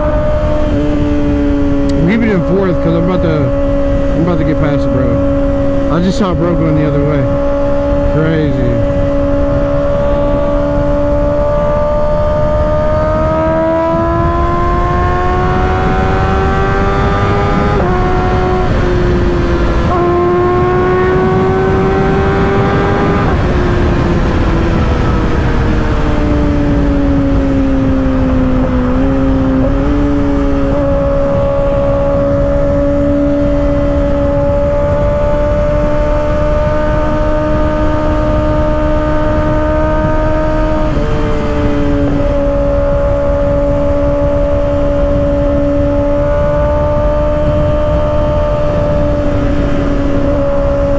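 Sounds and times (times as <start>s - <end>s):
motorcycle engine revving: 0.0s - 50.9s
wind and road noise: 0.0s - 50.9s.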